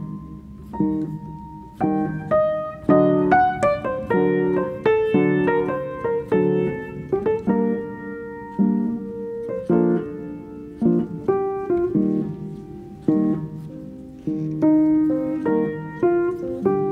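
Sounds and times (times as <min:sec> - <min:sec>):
slow piano music: 0:00.0 - 0:16.9.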